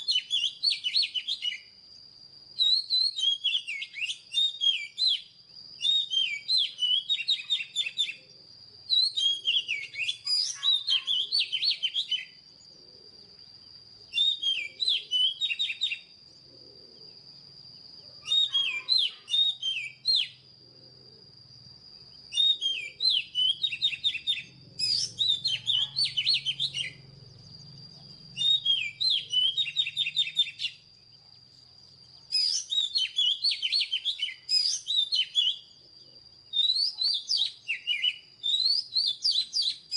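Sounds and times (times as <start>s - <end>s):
bird singing whistled phrases: 0.0s - 1.8s, 2.6s - 12.4s, 14.0s - 16.1s, 18.0s - 20.4s, 22.2s - 27.0s, 28.2s - 30.9s, 32.1s - 35.8s, 36.4s - 39.9s.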